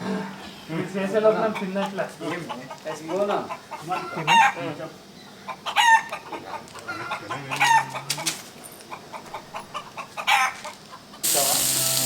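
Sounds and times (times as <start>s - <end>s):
chicken calling: 1.4s - 4.6s, 5.3s - 8.3s, 8.9s - 12.0s.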